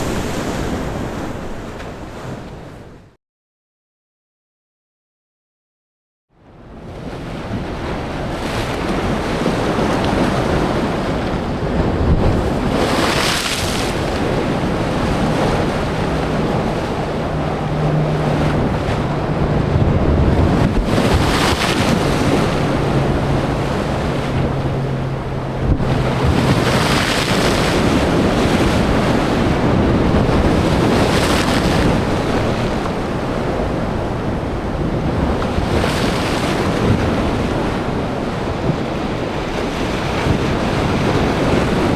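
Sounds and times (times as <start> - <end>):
surf crashing on rocks: 0.0 - 2.4, 7.4 - 41.9
low traffic engine hum: 15.4 - 21.2, 21.9 - 26.9.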